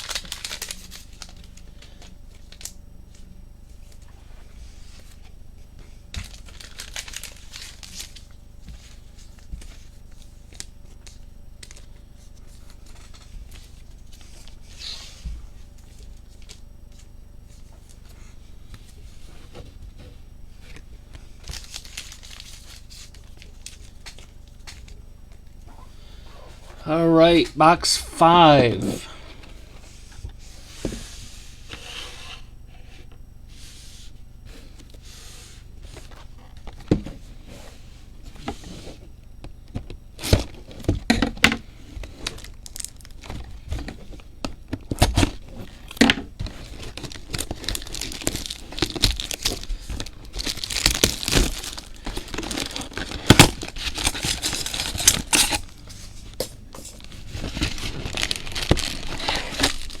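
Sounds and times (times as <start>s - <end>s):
plastic wrapping crinkling: 0.0s - 2.8s, 6.2s - 8.4s, 21.4s - 25.0s, 42.0s - 43.3s, 45.6s - 55.8s, 56.4s - 60.0s.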